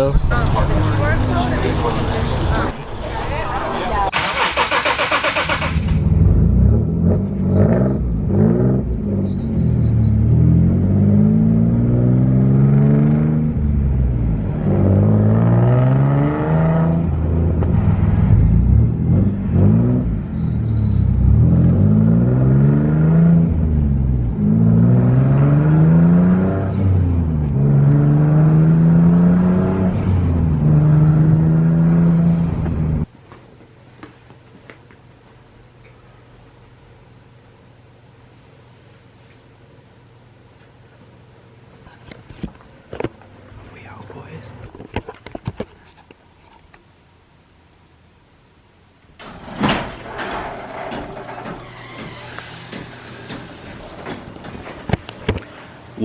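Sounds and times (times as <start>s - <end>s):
car engine accelerating through gears: 4.3s - 33.1s.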